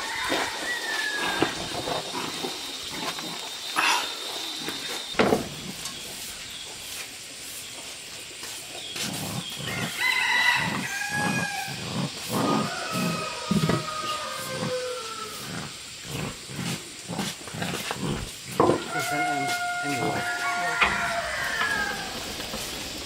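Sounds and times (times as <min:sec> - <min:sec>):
rooster crowing: 0:00.0 - 0:01.6, 0:09.6 - 0:11.8, 0:12.4 - 0:15.4, 0:18.7 - 0:22.5
knocks and thumps: 0:05.1 - 0:06.0, 0:18.5 - 0:19.1.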